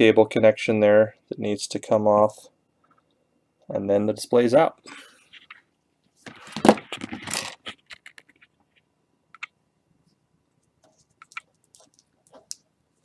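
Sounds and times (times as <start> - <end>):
plastic scraping rustle: 6.3 - 8.5.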